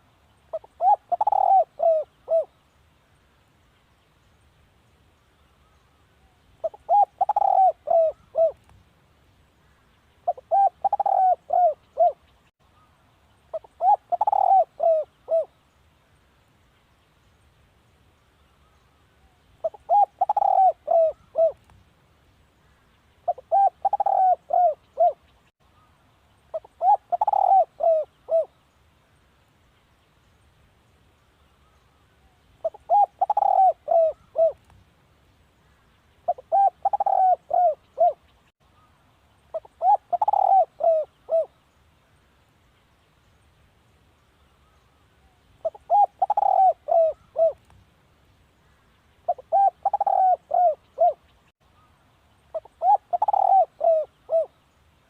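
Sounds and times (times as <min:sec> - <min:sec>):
dove cooing: 0:00.5 - 0:02.5, 0:06.6 - 0:08.6, 0:10.2 - 0:12.3, 0:13.5 - 0:15.5, 0:19.6 - 0:21.6, 0:23.3 - 0:25.3, 0:26.5 - 0:28.6, 0:32.6 - 0:34.6, 0:36.3 - 0:38.2, 0:39.5 - 0:41.6, 0:45.6 - 0:47.6, 0:49.3 - 0:51.3, 0:52.5 - 0:54.6.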